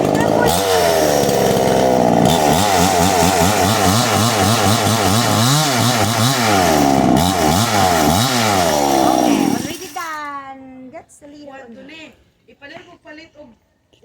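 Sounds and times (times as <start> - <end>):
chainsaw cutting wood: 0.0 - 10.2.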